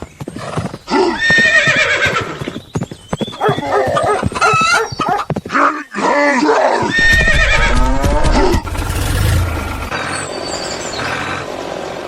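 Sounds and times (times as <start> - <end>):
rushing noise with low rumble: 7.0 - 10.0.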